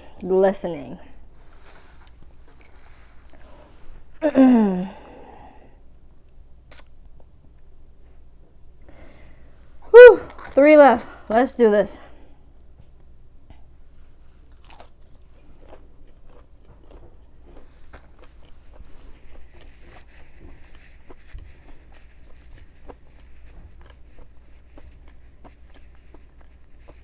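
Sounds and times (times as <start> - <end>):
person chewing crunchy food: 1.2 - 4.2, 13.7 - 27.0.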